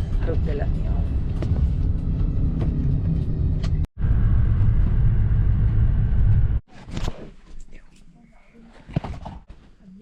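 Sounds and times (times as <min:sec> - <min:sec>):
road vehicle rumbling: 0:00.0 - 0:06.6.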